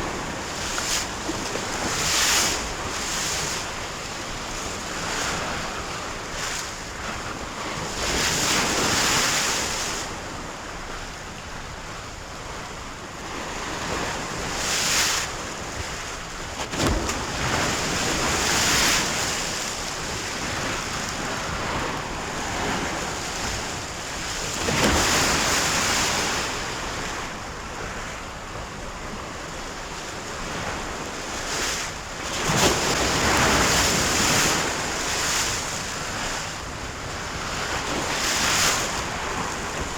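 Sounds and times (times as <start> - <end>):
sea waves washing in: 14.1 - 27.8.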